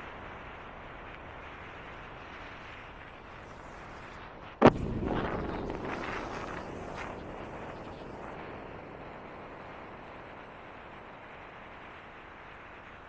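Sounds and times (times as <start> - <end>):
loud bang: 4.6 - 7.9
rough rumble: 4.6 - 11.9.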